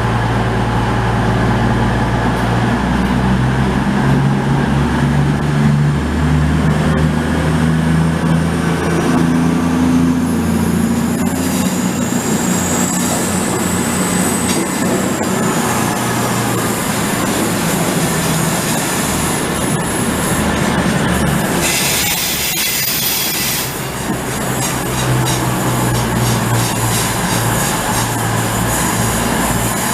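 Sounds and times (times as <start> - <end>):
low engine drone: 0.0 - 22.1
train moving on rails: 0.0 - 29.9
high wheel squeal: 21.5 - 23.9.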